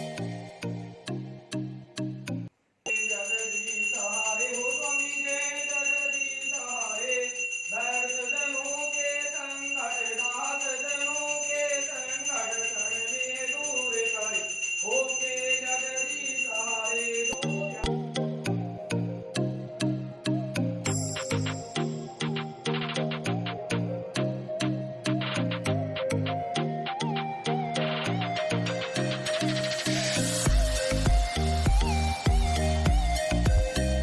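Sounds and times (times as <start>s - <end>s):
high steady ringing: 2.9s - 18.1s, 20.8s - 22.8s
background music with regular beat: 20.4s - 34.0s
person singing slow melody: 26.4s - 34.0s.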